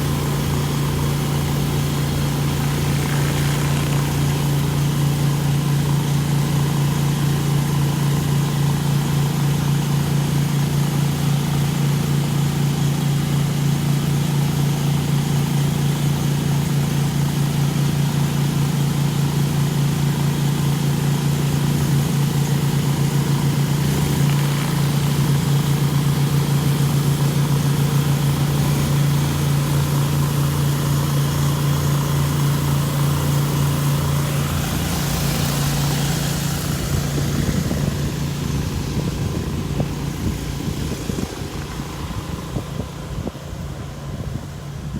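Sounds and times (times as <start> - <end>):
water spray hissing: 0.0 - 5.9, 21.2 - 42.5
pressure washer engine drone: 0.0 - 44.9.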